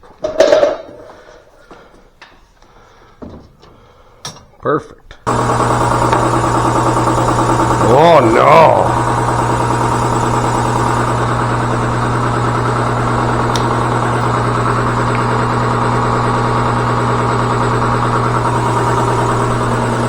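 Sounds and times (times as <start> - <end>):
loud machine drone: 5.3 - 20.0.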